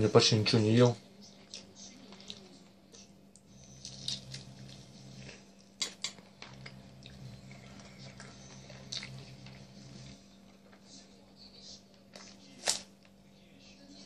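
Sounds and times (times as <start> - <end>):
low steady hum: 0.0 - 14.0
man chewing: 1.3 - 10.8.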